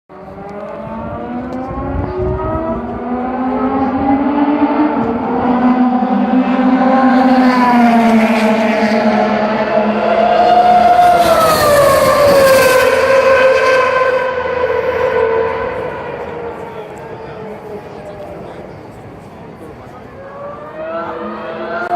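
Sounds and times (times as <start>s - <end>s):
racing car engine passing by: 0.1s - 21.9s.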